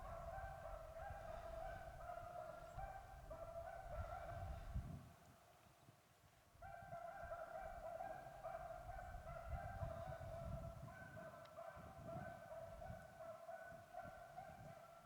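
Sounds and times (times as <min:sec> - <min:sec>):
beagles baying: 0:00.0 - 0:04.7.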